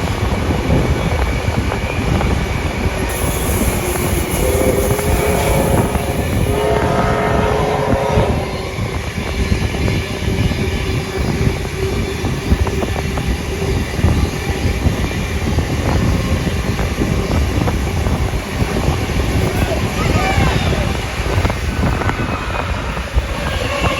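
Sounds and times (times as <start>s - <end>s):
train rumbling on rails: 0.0s - 23.9s
wheel squeal: 3.1s - 6.6s.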